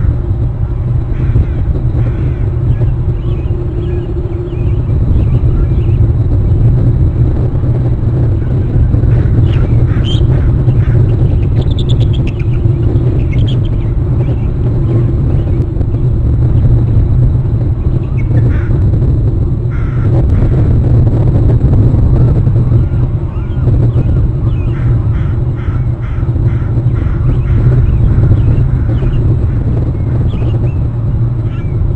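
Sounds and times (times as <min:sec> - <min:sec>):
low outdoor rumble: 0:00.0 - 0:31.9
eagle chittering calls: 0:01.1 - 0:06.2, 0:08.2 - 0:15.6, 0:22.7 - 0:30.8.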